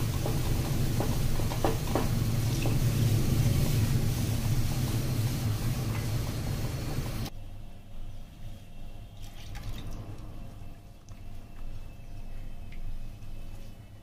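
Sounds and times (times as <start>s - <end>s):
food sizzling in a pan: 0.0s - 7.3s
low rumble: 0.0s - 7.3s.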